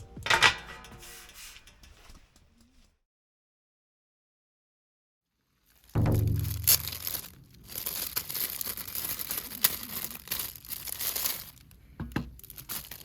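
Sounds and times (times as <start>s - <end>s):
bag crinkling and rustling: 5.5s - 13.0s.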